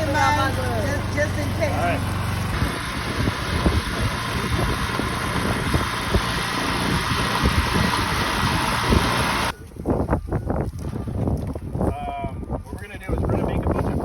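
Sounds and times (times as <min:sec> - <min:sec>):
tractor engine running: 0:00.0 - 0:09.5.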